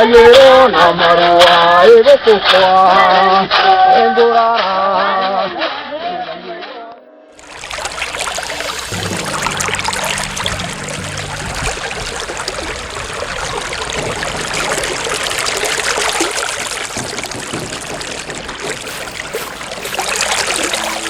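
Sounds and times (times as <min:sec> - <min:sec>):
stream trickling and rushing: 0:07.4 - 0:21.0.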